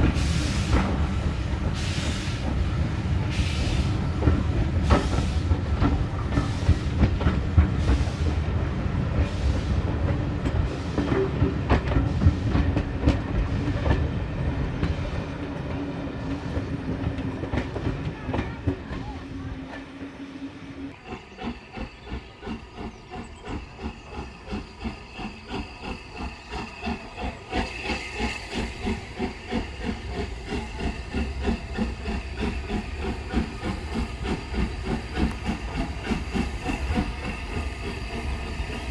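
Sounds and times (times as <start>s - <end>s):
steam hissing: 0.0s - 17.8s, 20.1s - 38.9s
steam locomotive exhaust beats: 0.0s - 38.9s.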